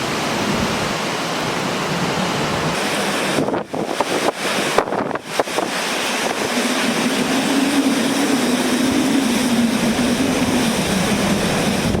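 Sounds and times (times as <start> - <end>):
strong wind buffeting microphone: 1.7 - 12.0
low wavering drone: 6.5 - 12.0.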